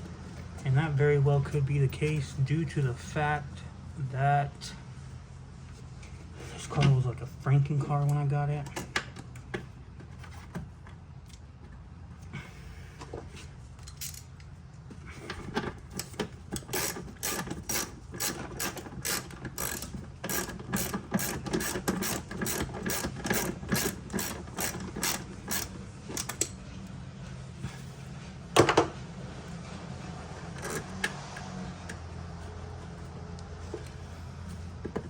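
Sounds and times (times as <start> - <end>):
ratchet wrench clicking: 16.0 - 26.5.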